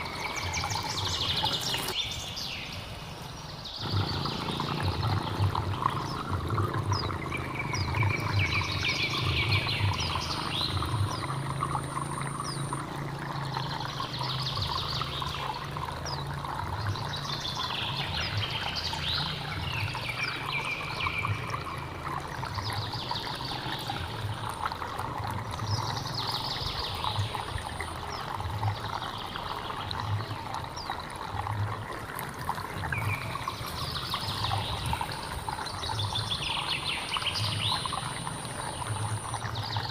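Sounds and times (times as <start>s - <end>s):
birds calling in high bursts: 0.0s - 22.0s
stream flowing and trickling: 0.0s - 39.9s.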